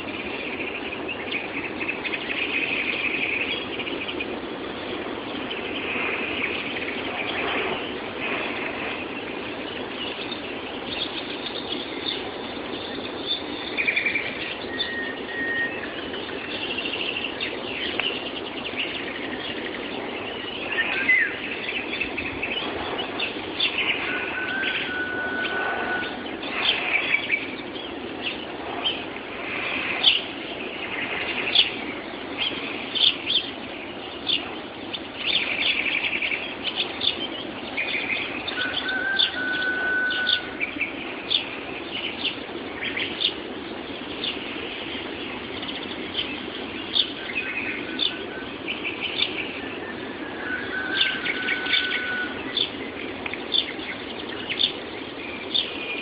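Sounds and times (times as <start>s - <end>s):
low background rumble: 0.0s - 56.0s
songbirds chirping and trilling: 0.0s - 56.0s
held bird whistle: 13.3s - 16.0s, 23.2s - 27.3s, 38.5s - 40.6s, 49.2s - 52.7s.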